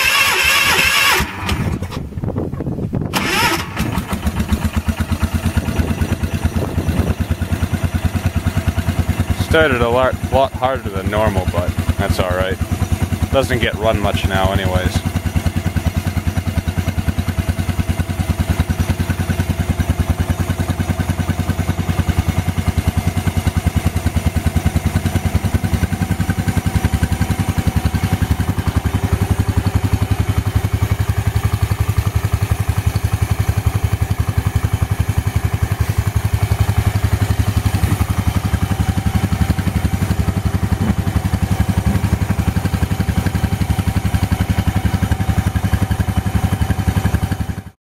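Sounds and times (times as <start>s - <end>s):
tractor engine idling: 0.0s - 47.8s.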